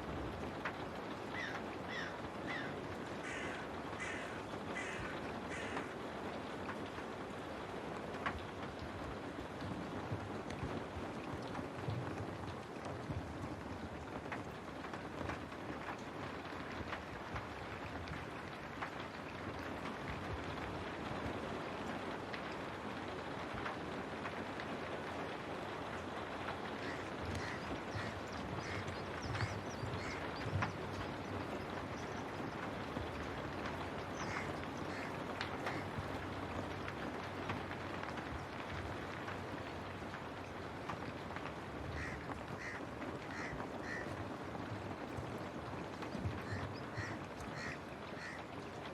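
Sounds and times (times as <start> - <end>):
rain on a window: 0.0 - 48.9
crow cawing: 1.3 - 5.9, 26.8 - 30.8, 34.2 - 36.0, 42.0 - 44.1, 46.4 - 48.5.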